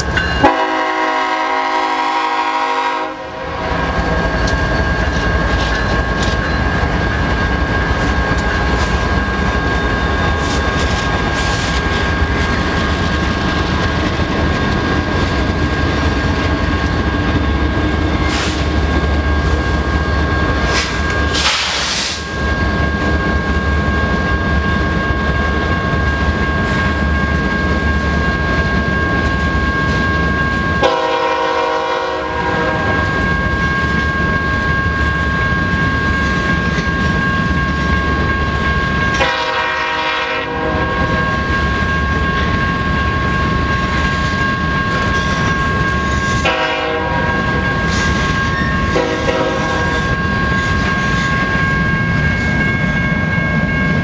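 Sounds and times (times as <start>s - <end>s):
train rumbling past: 0.0s - 54.0s
locomotive horn blasts: 0.4s - 4.0s, 30.8s - 33.0s, 39.2s - 41.1s, 46.4s - 47.5s, 48.9s - 49.9s.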